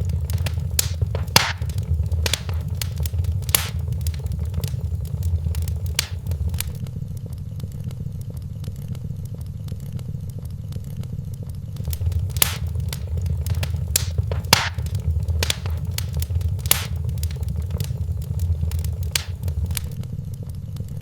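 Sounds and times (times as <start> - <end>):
fire popping: 0.0 - 6.8, 11.8 - 20.0
low steady rumble: 0.0 - 6.8, 11.8 - 20.0
wood fire crackling: 0.0 - 6.8, 11.8 - 20.0.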